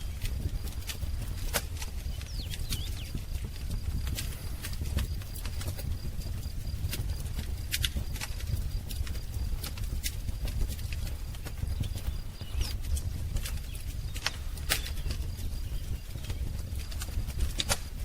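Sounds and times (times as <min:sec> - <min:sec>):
faint birdsong: 0:00.0 - 0:18.0
wood fire crackling and popping: 0:00.0 - 0:18.0.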